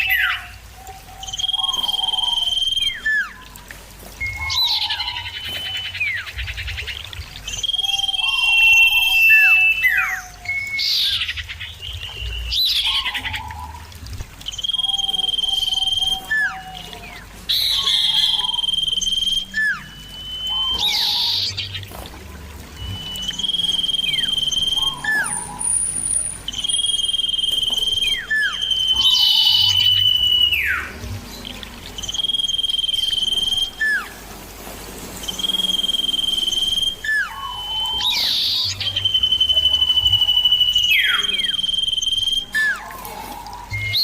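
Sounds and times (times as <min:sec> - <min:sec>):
bird whistling call: 0:00.0 - 0:34.3, 0:35.1 - 0:44.0.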